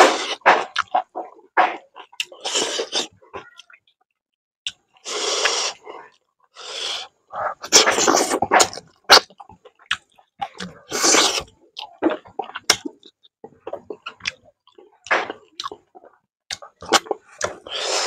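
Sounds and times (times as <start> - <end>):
person chewing with lip smacks: 0.2 - 3.8, 7.6 - 17.8.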